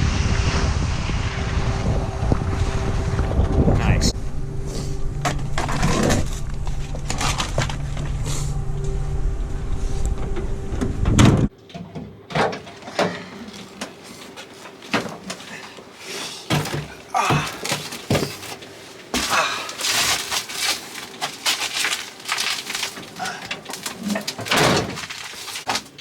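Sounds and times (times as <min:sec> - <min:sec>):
wind buffeting microphone: 0:00.0 - 0:04.6.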